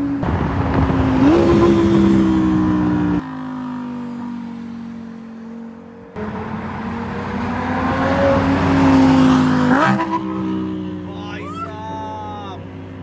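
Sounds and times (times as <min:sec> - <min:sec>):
car engine accelerating hard: 0:00.2 - 0:03.2, 0:06.1 - 0:11.2.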